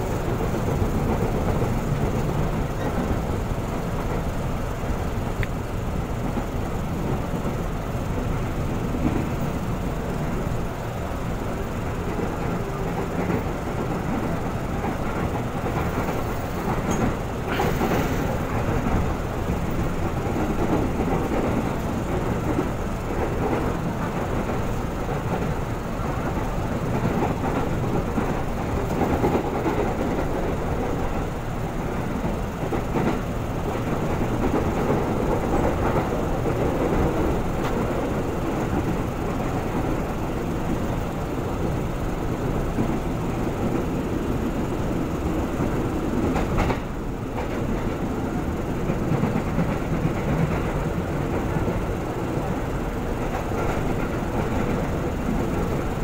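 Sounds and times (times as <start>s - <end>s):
train wheels rumbling on rails: 0.0s - 56.0s
clatter over rail joints: 11.8s - 39.9s, 45.5s - 55.9s.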